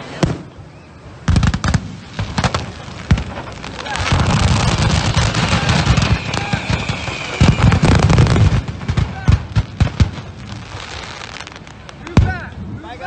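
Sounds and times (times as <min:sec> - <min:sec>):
fireworks bangs: 0:00.0 - 0:13.0
fireworks crackling: 0:00.0 - 0:13.0
high steady whistle: 0:05.5 - 0:08.4.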